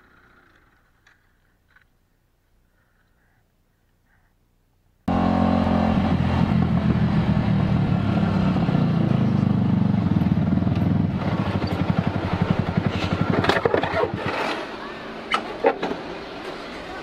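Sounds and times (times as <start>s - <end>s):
motorcycle engine running: 5.1s - 14.5s.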